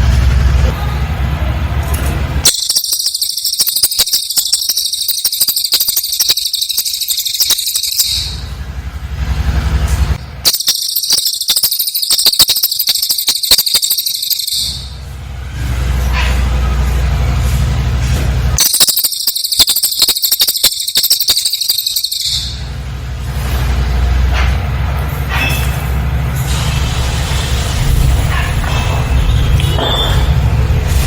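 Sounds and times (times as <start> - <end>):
bird chattering high-pitched: 2.4 - 8.5, 10.5 - 15.0, 18.6 - 22.7.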